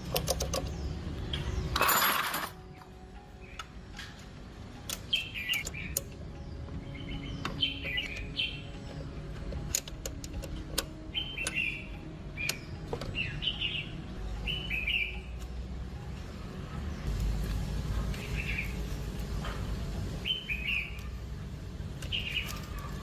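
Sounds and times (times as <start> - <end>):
small bird chirping: 4.9 - 15.6, 20.2 - 21.3, 22.0 - 23.0.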